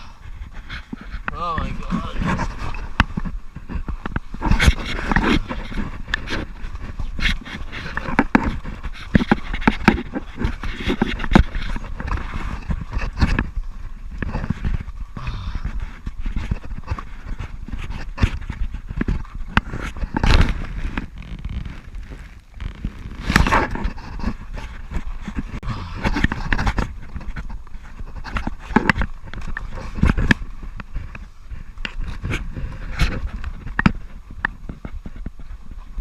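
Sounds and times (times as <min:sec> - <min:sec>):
heavy ragged breathing: 0:15.1 - 0:16.4, 0:25.4 - 0:26.8.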